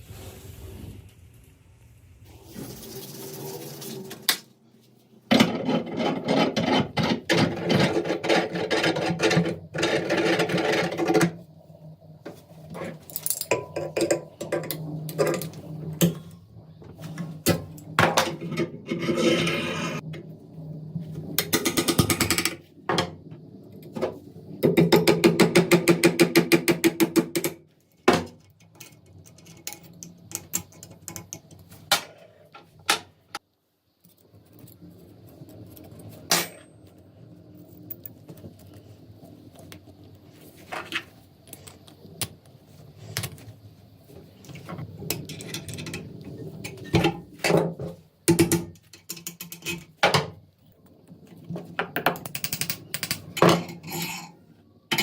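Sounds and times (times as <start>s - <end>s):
tool scraping metal: 18.5s - 20.0s.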